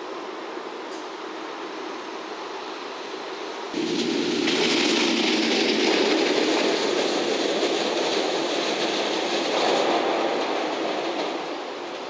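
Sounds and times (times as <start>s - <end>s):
train wheels rumbling on rails: 3.5s - 12.0s
clickety-clack over rail joints: 3.8s - 12.0s.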